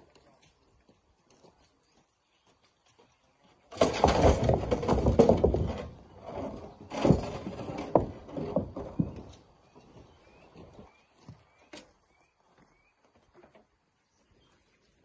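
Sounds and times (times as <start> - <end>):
rocks tipped into truck bed: 3.7 - 9.4.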